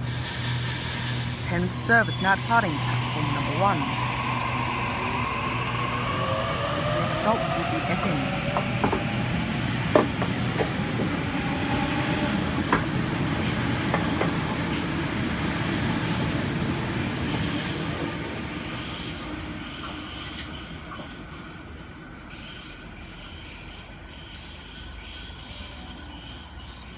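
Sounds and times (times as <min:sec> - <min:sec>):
train wheels rumbling on rails: 0:00.0 - 0:26.9
thin high wheel squeal: 0:22.0 - 0:26.9.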